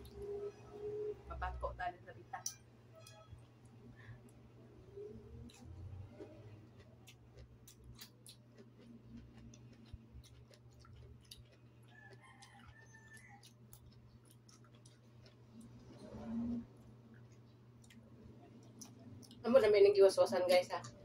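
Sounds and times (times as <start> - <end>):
seaweed being chewed: 5.4 - 19.4
distant rooster crowing: 11.8 - 13.6.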